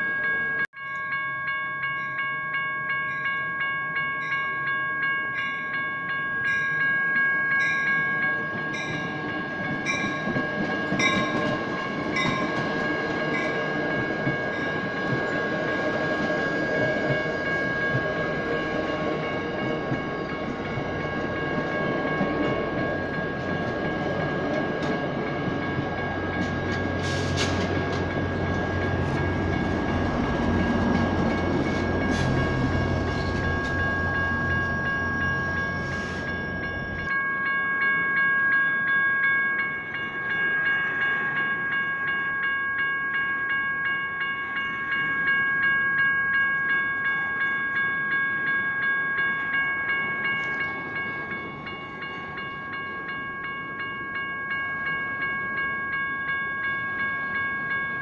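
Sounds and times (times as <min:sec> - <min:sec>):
electronic crossing bells ringing: 0:00.0 - 0:58.0
train rumbling: 0:08.3 - 0:37.1.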